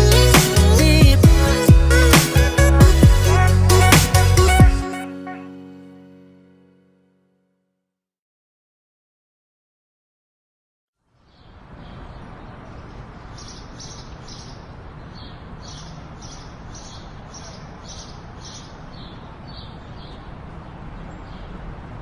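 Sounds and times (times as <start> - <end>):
outdoor background hiss: 11.0 - 22.0
birds chirping: 11.2 - 22.0.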